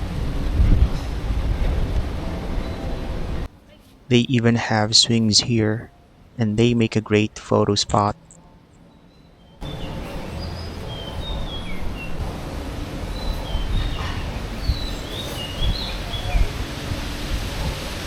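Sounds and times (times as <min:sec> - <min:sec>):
low outdoor rumble: 0:00.0 - 0:08.9, 0:09.6 - 0:18.0
small birds chirping: 0:08.2 - 0:16.7.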